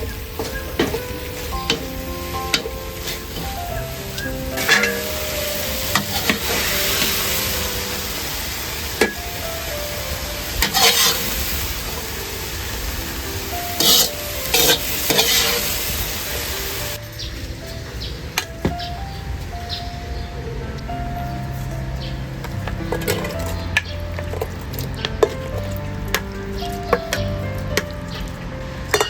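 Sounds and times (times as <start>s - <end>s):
food sizzling in a pan: 0.0s - 17.0s
soft background music: 0.0s - 29.0s
utensil scraping a pan: 4.3s - 5.3s, 10.6s - 11.4s, 13.8s - 15.8s.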